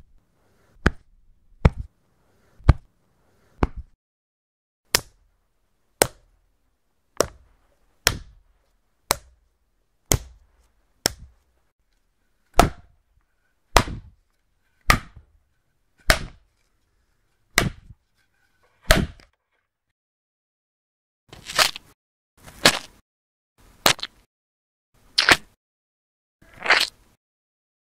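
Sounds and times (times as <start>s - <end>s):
skin-on-skin slaps: 11.0s - 11.3s, 25.2s - 25.5s.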